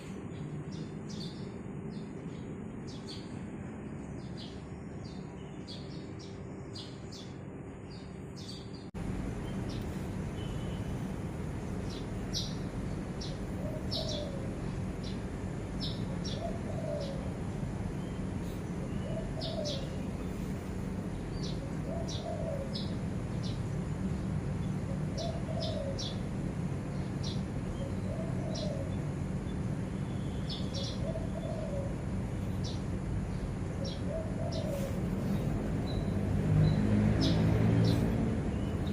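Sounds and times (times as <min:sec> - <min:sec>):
small birds chirping: 0:00.0 - 0:38.9
steady low hum: 0:00.0 - 0:38.9
dove cooing: 0:13.3 - 0:14.6, 0:16.2 - 0:17.4, 0:18.8 - 0:20.5, 0:21.5 - 0:22.9, 0:28.0 - 0:29.0, 0:30.8 - 0:32.2, 0:33.8 - 0:35.6.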